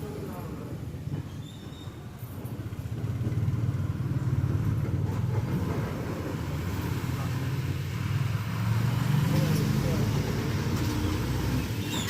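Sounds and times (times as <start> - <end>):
road and tyre noise: 0.0 - 12.0
bus engine running: 2.4 - 12.0.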